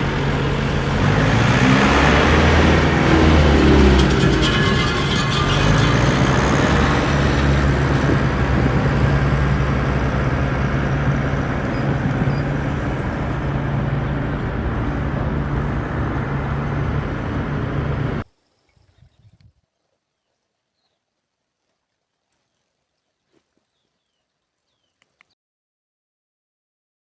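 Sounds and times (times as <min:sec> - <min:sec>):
small tractor motor humming: 0:00.0 - 0:18.2.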